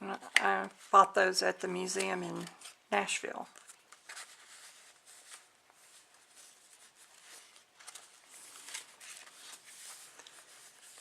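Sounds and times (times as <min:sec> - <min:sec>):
paper pages rustling: 0:03.5 - 0:11.0
soft brushing strokes: 0:04.1 - 0:11.0.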